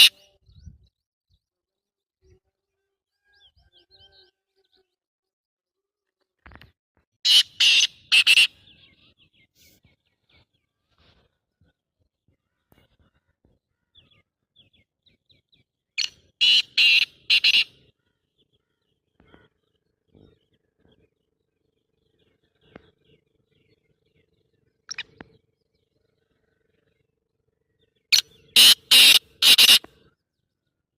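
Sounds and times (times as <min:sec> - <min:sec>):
bird harsh grating calls: 0:00.0 - 0:00.3, 0:07.2 - 0:09.0, 0:16.0 - 0:18.0, 0:28.1 - 0:30.1.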